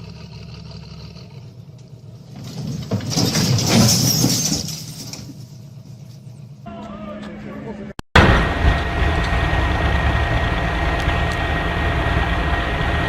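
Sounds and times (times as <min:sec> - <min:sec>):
heavy machine engine running: 0:00.0 - 0:03.8, 0:08.2 - 0:13.0.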